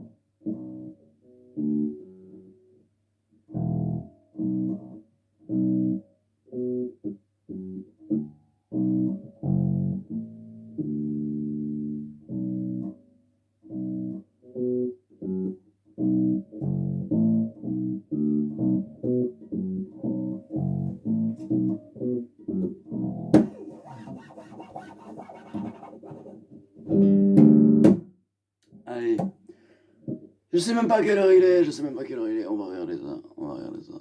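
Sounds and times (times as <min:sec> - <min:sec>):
bass guitar plucked notes: 0:03.5 - 0:06.0, 0:06.6 - 0:13.0, 0:13.7 - 0:24.3, 0:26.8 - 0:28.1
string scrape noise: 0:23.4 - 0:26.4.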